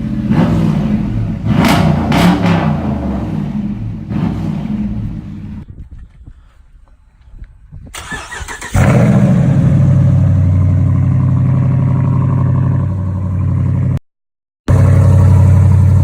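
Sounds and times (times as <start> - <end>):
engine cranking on starter: 7.9 - 9.4
v eight engine loud idle: 8.8 - 14.0, 14.7 - 16.0.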